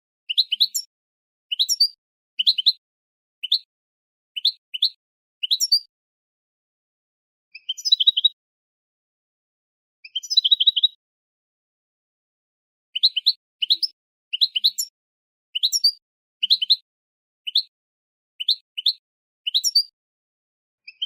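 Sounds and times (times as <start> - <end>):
bird twittering and chirping: 0.3 - 0.9, 1.5 - 2.8, 4.4 - 5.9, 7.6 - 8.4, 10.1 - 11.0, 13.0 - 14.9, 15.5 - 16.8, 18.4 - 19.9.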